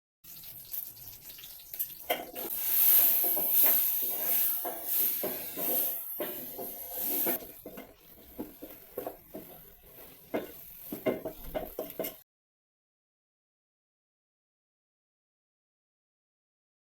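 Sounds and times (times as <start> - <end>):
food sizzling in a pan: 0.3 - 12.2
utensils clinking on pots: 0.4 - 12.2.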